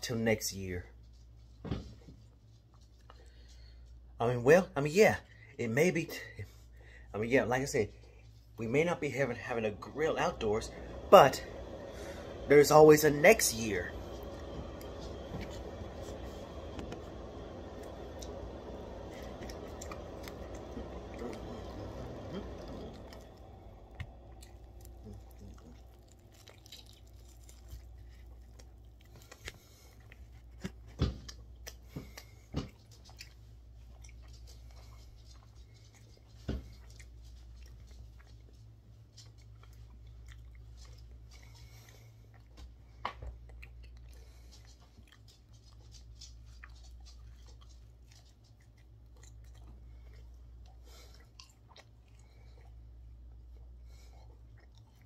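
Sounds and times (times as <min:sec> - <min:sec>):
steady low hum: 0:00.0 - 0:55.0
person chewing ribs: 0:06.1 - 0:55.0.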